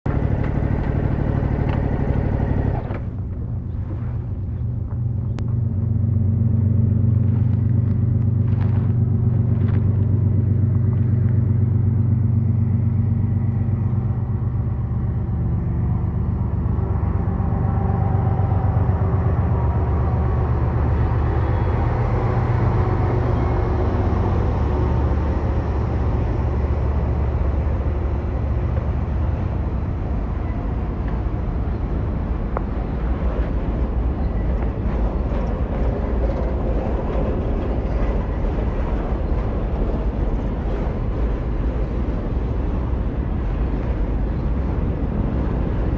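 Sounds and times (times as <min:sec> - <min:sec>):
road and wind noise: 0:00.0 - 0:45.9
motorcycle engine running: 0:00.1 - 0:23.6.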